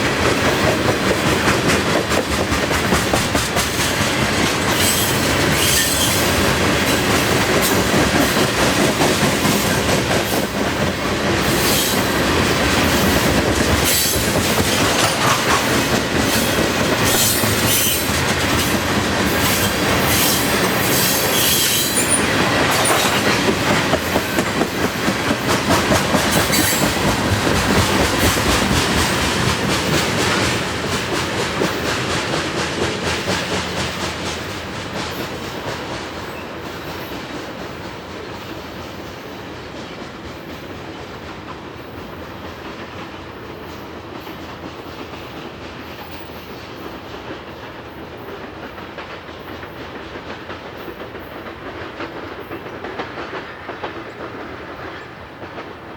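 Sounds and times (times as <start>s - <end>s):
train wheels clacking over rails: 0.0s - 55.9s
high wheel squeal: 4.8s - 6.3s, 17.1s - 18.1s, 19.5s - 22.2s.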